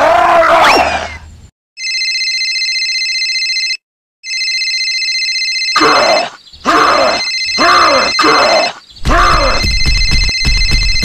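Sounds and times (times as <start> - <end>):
electronic telephone ringing: 1.8 - 6.0, 9.7 - 11.0.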